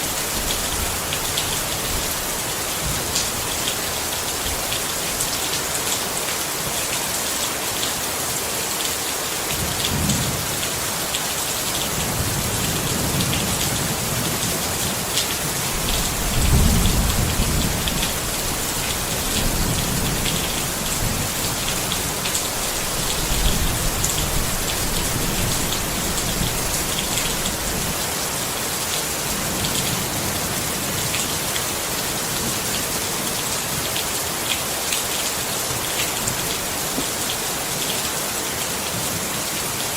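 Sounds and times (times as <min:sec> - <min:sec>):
rain pattering on a tent: 0:00.0 - 0:39.9
thunder rumbling: 0:15.8 - 0:21.7.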